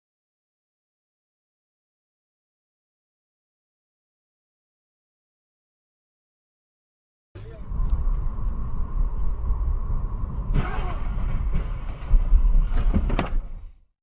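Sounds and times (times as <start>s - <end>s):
car engine and road noise: 7.4s - 13.8s.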